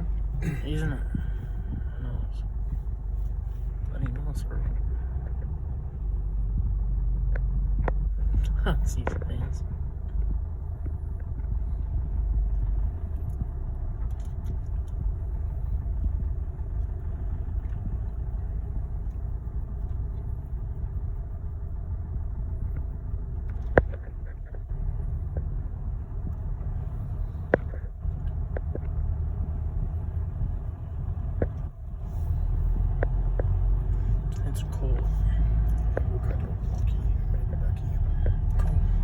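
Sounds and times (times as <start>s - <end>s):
engine rumbling low: 0.0s - 39.0s.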